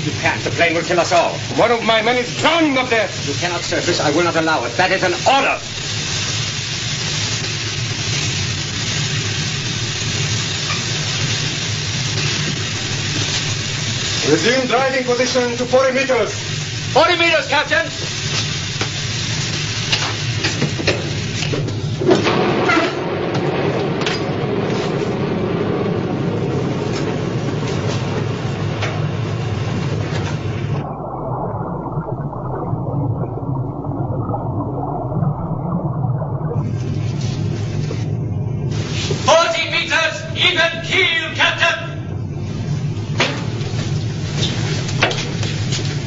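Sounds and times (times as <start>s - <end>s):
even hiss: 0.0s - 30.9s
low mechanical hum: 17.9s - 46.0s.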